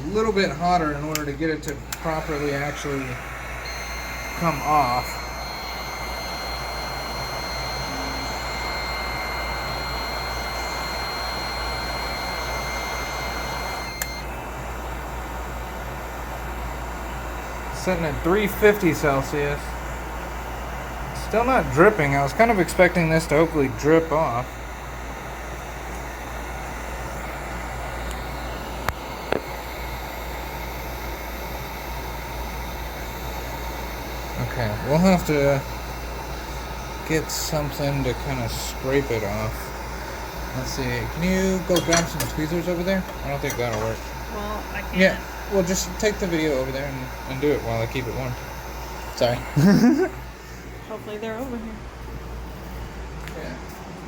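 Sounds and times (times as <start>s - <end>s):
electric blower fan whirring: 0.0s - 54.0s
high whine: 0.0s - 54.0s.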